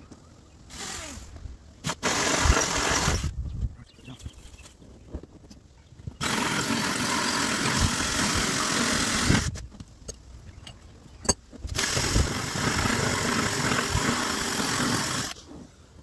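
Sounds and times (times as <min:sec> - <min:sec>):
power drill cutting: 0:01.9 - 0:03.3, 0:06.2 - 0:09.5, 0:11.8 - 0:15.4.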